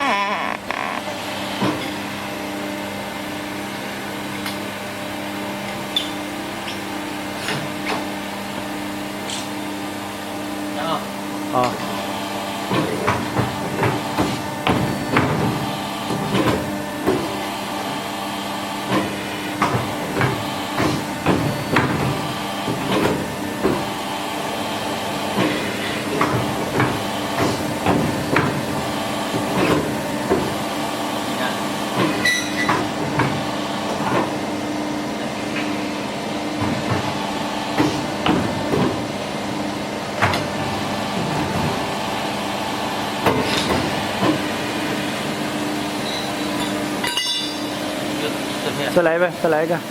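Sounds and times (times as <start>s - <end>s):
hydraulic unit humming: 0.0s - 1.1s.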